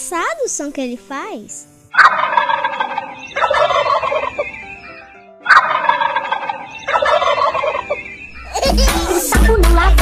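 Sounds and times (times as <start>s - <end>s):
turkey gobbling: 2.0s - 4.7s, 5.4s - 8.2s.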